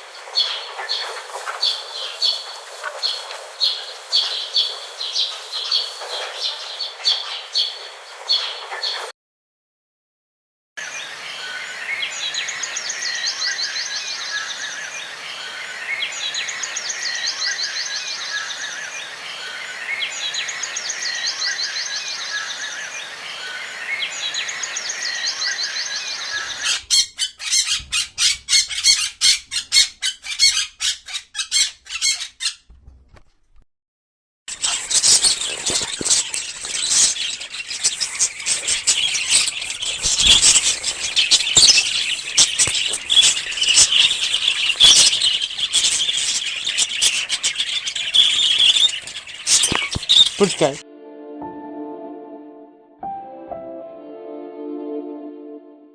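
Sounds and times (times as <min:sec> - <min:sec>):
background hiss: 0:10.8 - 0:26.8
bird trilling: 0:10.8 - 0:32.7
sharp bird chirps: 0:10.8 - 0:32.7, 0:34.5 - 0:50.8.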